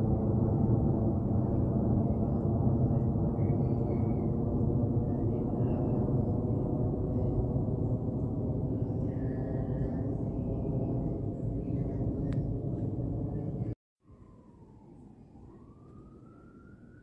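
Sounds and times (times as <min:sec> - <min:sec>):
aircraft rumble overhead: 0:00.0 - 0:17.0
faint siren wailing: 0:00.0 - 0:17.0.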